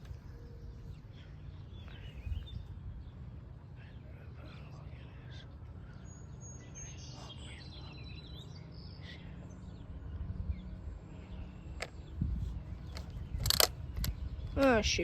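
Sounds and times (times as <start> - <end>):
steady low rumble: 0.0 - 15.0
wild birds chirping: 0.0 - 15.0.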